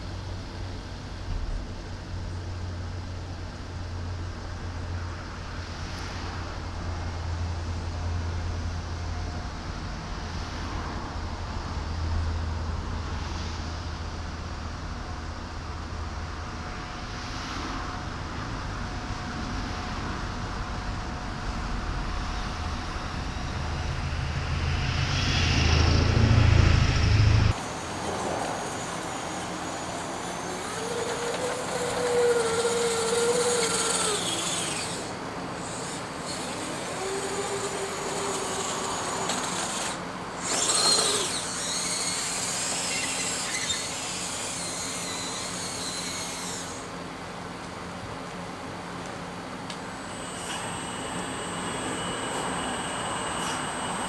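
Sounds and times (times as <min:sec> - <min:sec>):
small electric motor whining: 0:27.4 - 0:47.1, 0:49.7 - 0:54.0.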